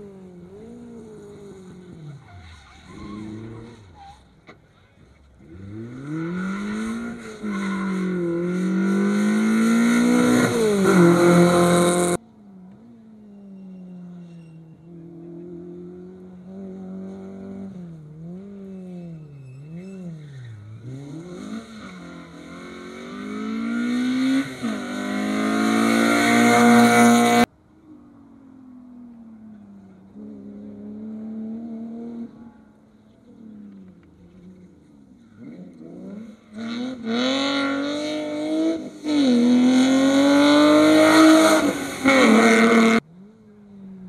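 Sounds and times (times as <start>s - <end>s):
rally car engine revving: 5.4s - 12.2s, 15.0s - 27.5s, 35.3s - 43.4s.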